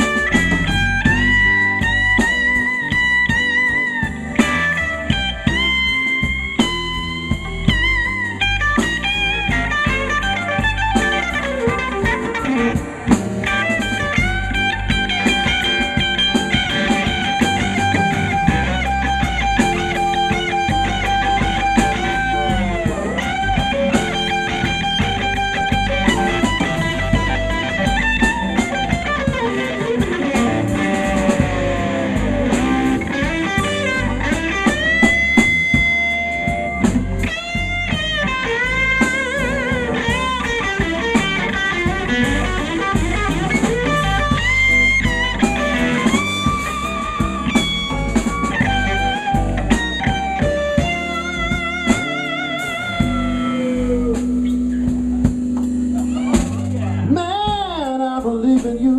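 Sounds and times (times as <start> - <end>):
electric guitar solo: 0.0 - 58.1
bass: 0.0 - 58.9
drum kit: 0.0 - 58.9.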